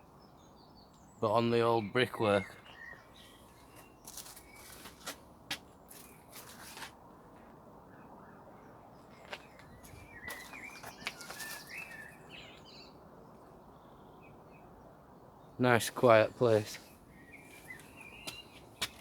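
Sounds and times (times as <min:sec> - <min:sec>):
outdoor background hiss: 0:00.0 - 0:19.0
small bird chirping: 0:09.0 - 0:14.7, 0:16.7 - 0:19.0.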